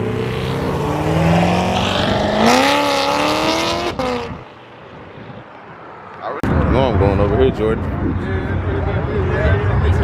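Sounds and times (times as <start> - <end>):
car engine revving: 0.0 - 4.6.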